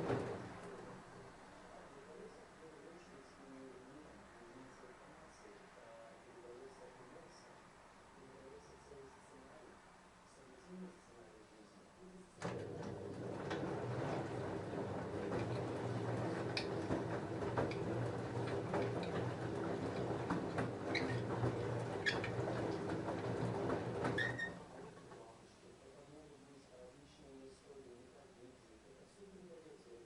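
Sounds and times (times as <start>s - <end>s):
washing machine motor hum: 0.0s - 1.6s, 12.4s - 25.3s.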